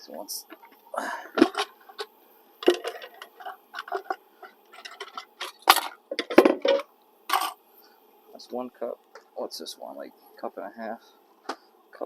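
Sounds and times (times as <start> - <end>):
measuring cups clattering: 1.4 - 7.6.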